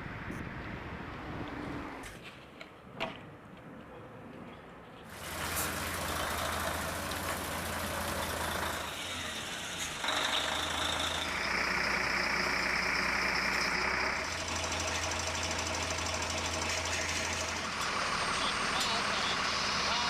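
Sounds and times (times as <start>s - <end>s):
truck engine running: 5.1s - 20.0s.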